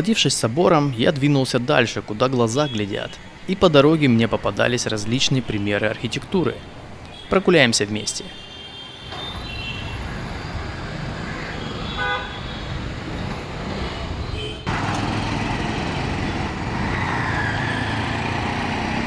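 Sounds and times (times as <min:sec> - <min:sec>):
busy street traffic: 0:00.0 - 0:19.0
vehicle horn toot: 0:11.6 - 0:12.8, 0:14.3 - 0:14.7.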